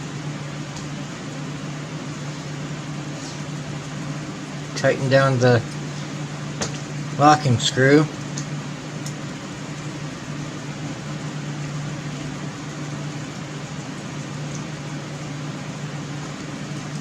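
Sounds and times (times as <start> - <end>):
machine hum with hiss: 0.0 - 17.0.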